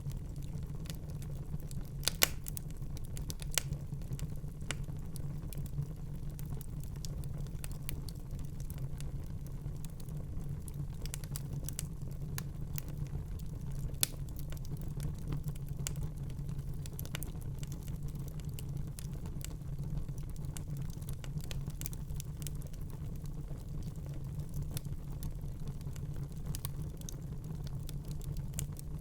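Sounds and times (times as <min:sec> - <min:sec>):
wood fire crackling and popping: 0:00.0 - 0:29.0.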